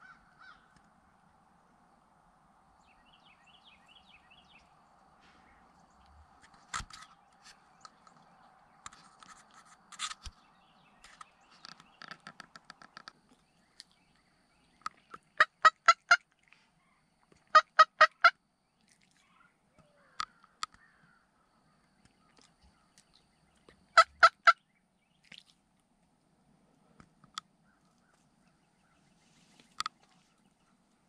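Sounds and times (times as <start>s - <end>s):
turkey yelps: 0.0s - 0.6s, 15.4s - 16.2s, 17.5s - 18.3s, 24.0s - 24.6s
turkey clucking: 15.3s - 16.2s, 17.5s - 18.3s, 24.0s - 24.6s.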